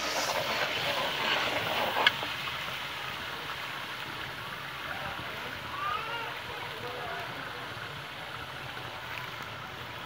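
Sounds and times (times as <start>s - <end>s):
masala sizzling and bubbling: 0.0s - 2.7s.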